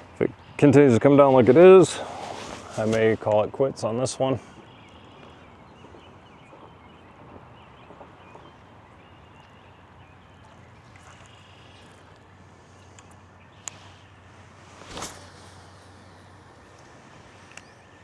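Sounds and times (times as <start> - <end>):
light rain hissing: 1.0 - 4.7, 12.5 - 18.0.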